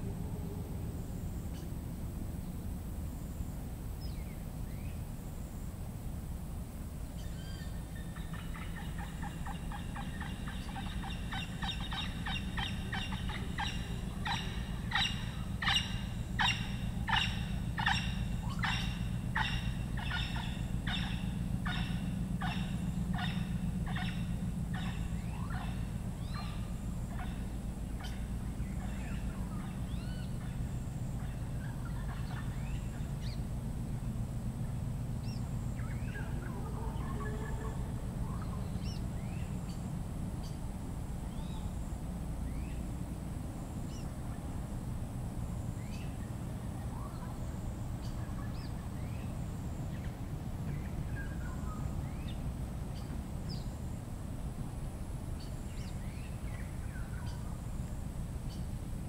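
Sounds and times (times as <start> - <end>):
steady low hum: 0.0 - 59.0
jungle bird calling: 7.2 - 40.6, 45.8 - 53.9, 55.4 - 57.7.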